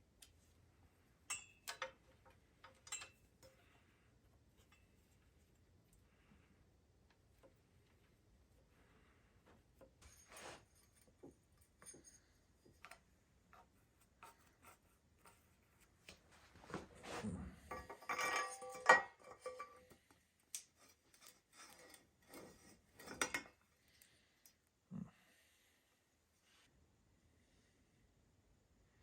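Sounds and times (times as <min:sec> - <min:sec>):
metallic clinks of tools: 0:02.6 - 0:03.6
clattering ringing metal: 0:17.7 - 0:19.7.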